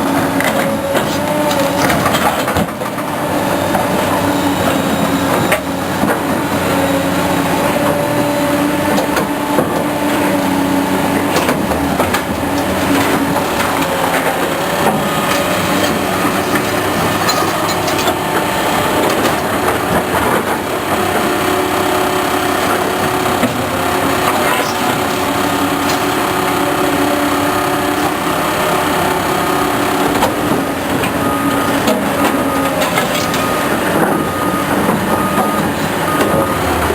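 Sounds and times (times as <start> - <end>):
diesel engine whining hum: 0.0 - 36.9
clanks and knocks: 11.2 - 20.6, 23.4 - 27.1, 31.8 - 34.2.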